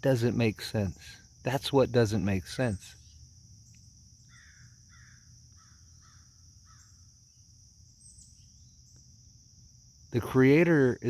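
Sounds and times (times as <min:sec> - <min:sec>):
insects chirring: 0:00.0 - 0:11.0
faint bird calling: 0:04.2 - 0:07.0.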